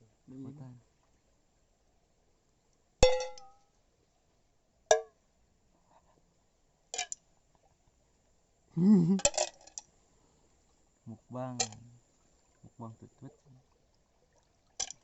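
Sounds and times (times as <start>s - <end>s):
tableware clinking: 3.0s - 3.5s, 7.0s - 7.2s
short wavering voice: 8.8s - 9.2s.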